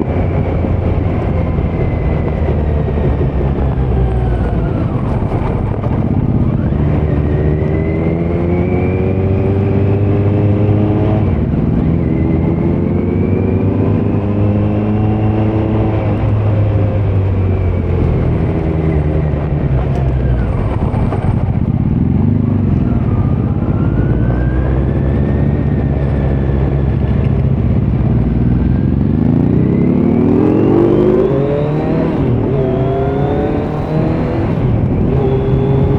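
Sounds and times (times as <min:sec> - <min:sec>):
motorcycle engine accelerating: 0:00.0 - 0:35.9.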